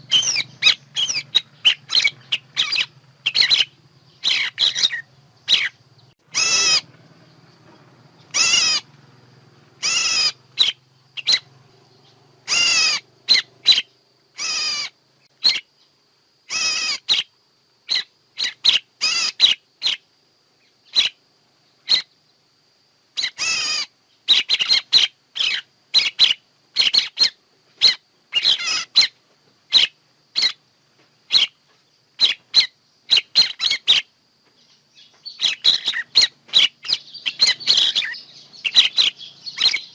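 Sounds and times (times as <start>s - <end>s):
harsh bird call notes: 0.0s - 7.0s, 8.2s - 8.9s, 9.8s - 11.6s, 12.5s - 14.9s, 35.3s - 39.9s.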